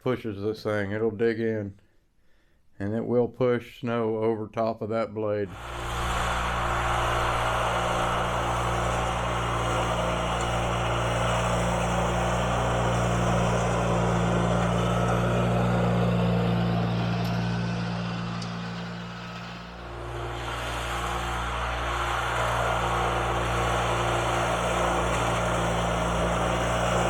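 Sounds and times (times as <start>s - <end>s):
garden tractor engine running: 5.5s - 27.0s.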